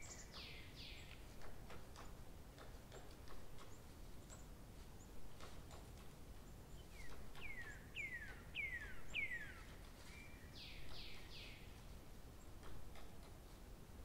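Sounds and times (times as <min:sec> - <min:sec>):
bird singing: 0:00.0 - 0:01.4, 0:02.9 - 0:11.8.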